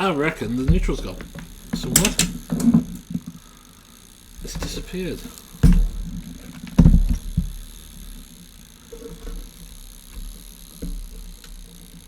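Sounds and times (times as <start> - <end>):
low hum: 0.0 - 12.0
dull handling thumps and knocks: 0.6 - 2.9, 5.6 - 7.6.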